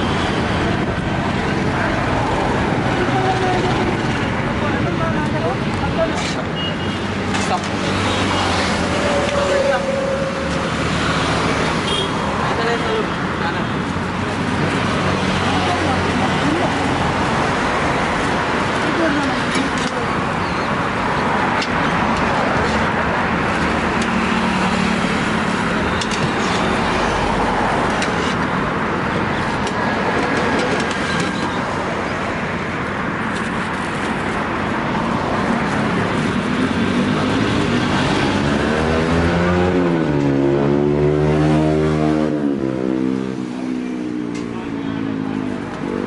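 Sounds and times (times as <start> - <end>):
road traffic passing: 0.0 - 46.0
vehicle engine close by: 35.4 - 46.0.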